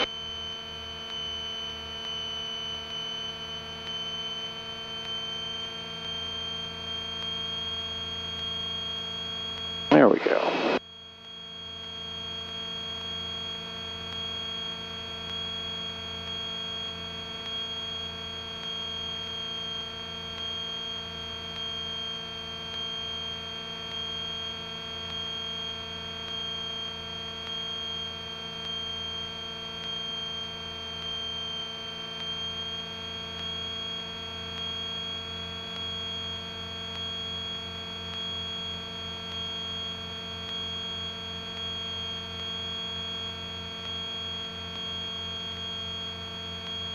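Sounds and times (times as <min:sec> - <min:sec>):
high steady whine: 0:09.9 - 0:10.8.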